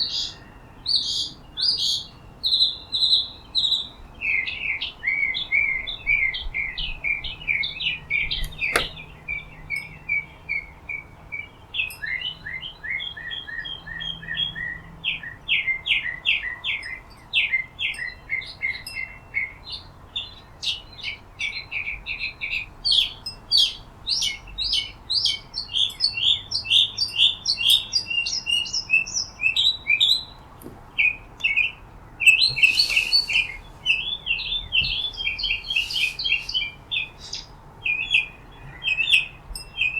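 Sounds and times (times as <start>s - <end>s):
small birds chirping: 0.0s - 39.9s
sharp click: 8.4s - 9.0s
harsh bird call: 31.6s - 38.3s.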